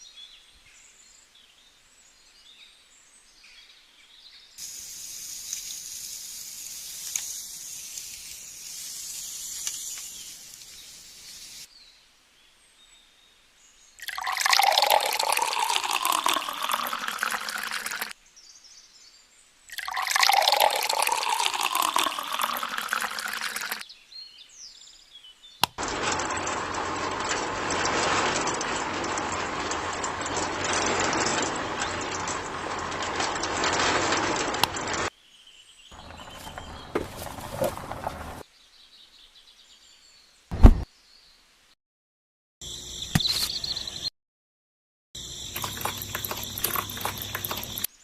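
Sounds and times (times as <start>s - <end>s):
water pouring and splashing: 14.0s - 18.2s, 19.7s - 23.8s, 36.0s - 38.4s, 45.5s - 47.9s.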